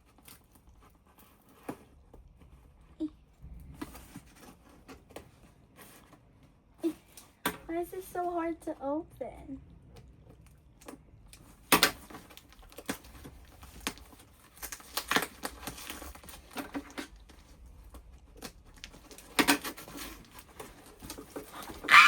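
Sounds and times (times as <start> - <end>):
packaging crinkling and tearing: 0.0 - 2.0, 10.3 - 22.0.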